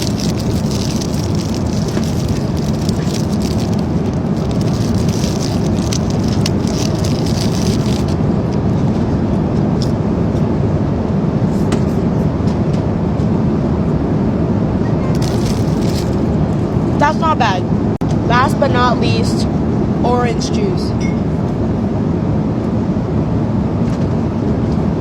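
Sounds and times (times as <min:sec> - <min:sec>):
cracker wrapper crackling: 0:00.0 - 0:08.6, 0:15.1 - 0:17.0
airliner cabin noise: 0:00.0 - 0:25.0.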